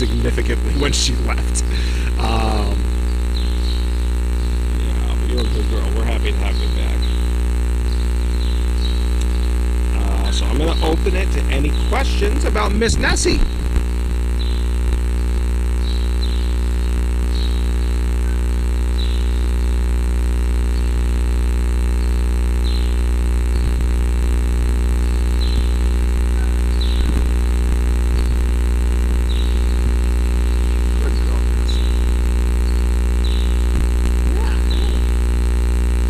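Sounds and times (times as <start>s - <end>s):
high falling chirps: 0.0s - 13.7s
low machine hum: 0.0s - 36.0s.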